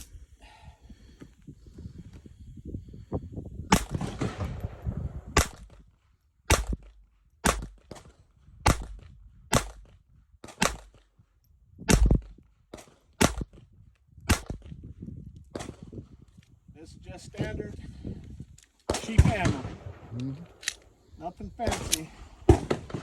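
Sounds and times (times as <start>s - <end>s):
pistol shots: 3.7s - 5.8s, 6.5s - 7.8s, 8.7s - 9.9s, 10.5s - 11.0s, 13.2s - 13.5s, 14.3s - 14.6s, 18.9s - 20.8s.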